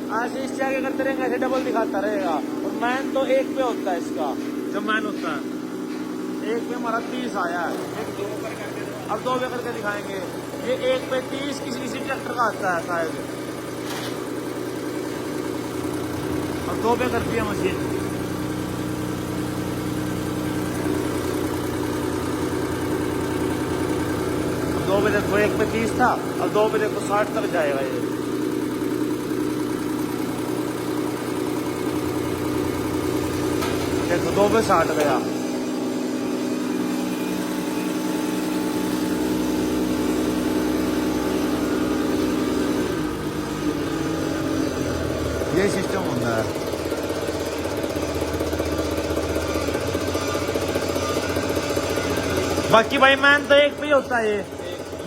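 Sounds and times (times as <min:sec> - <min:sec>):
fuel pump test bench droning: 0:00.0 - 0:55.0.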